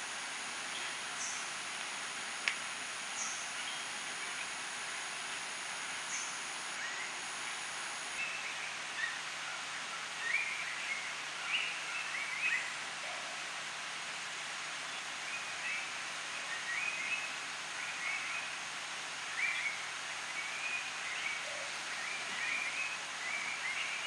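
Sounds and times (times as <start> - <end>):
rainforest hiss: 0.0 - 24.0
thin high steady tone: 0.3 - 9.2.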